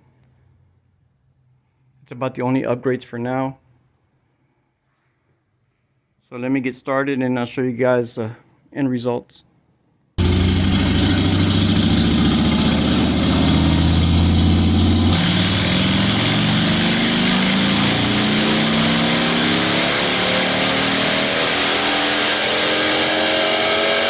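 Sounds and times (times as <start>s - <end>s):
motorcycle engine revving: 10.2s - 24.0s.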